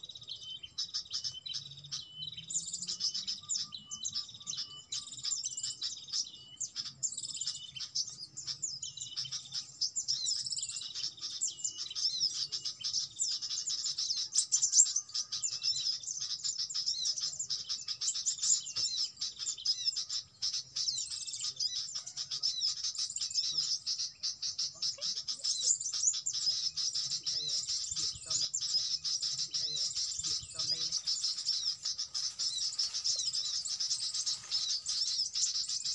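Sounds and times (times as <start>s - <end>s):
small birds chirping and twittering: 0.0s - 35.9s.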